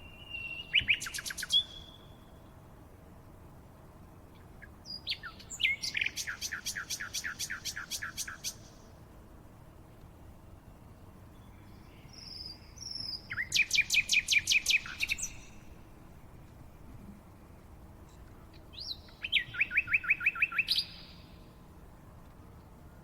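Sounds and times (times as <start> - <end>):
songbird singing: 0.0 - 23.0.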